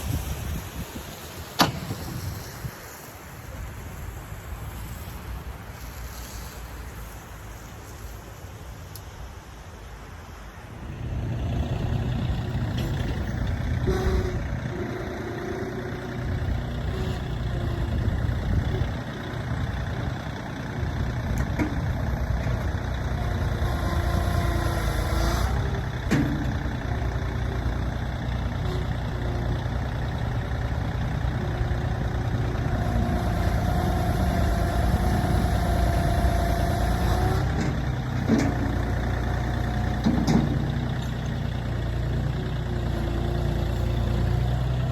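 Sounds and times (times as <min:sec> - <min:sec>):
vehicle engine running: 0:10.8 - 0:44.9.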